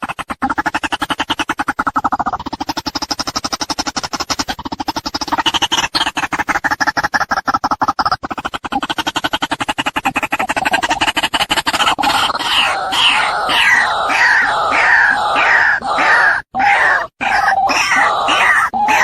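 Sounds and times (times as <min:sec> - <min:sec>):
waterhen calling: 0:12.0 - 0:19.0.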